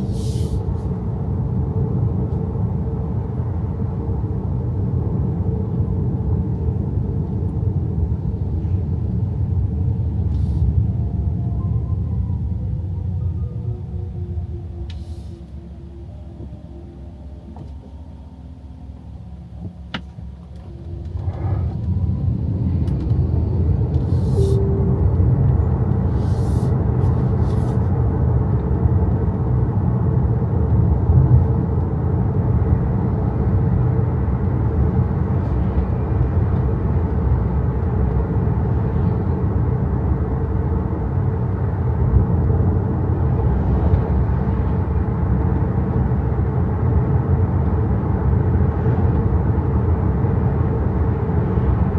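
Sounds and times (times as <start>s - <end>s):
car road and tyre rumble: 0.0s - 51.9s.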